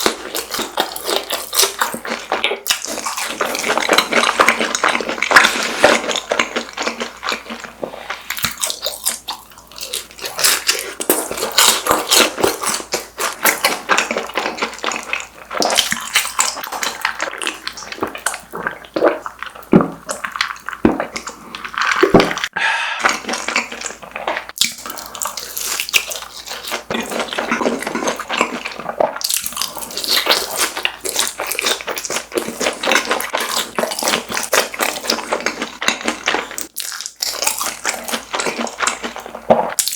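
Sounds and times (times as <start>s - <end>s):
wet chewing mouth sounds: 0.0s - 39.9s
crunchy snack bites: 8.3s - 39.9s.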